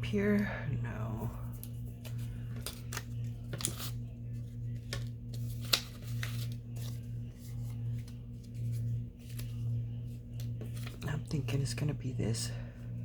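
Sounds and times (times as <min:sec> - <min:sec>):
steady low hum: 0:00.0 - 0:13.0
paper rustling and crinkling: 0:01.6 - 0:11.2.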